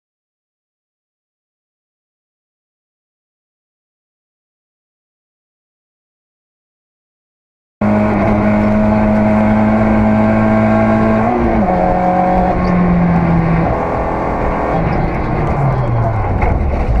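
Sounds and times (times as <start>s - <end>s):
car engine running: 7.8s - 17.0s.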